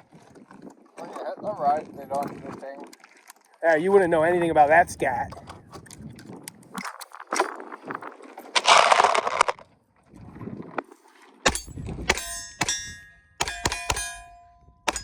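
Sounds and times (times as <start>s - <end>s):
metallic ping of steel targets: 11.5s - 15.0s
pistol shots: 11.5s - 15.0s.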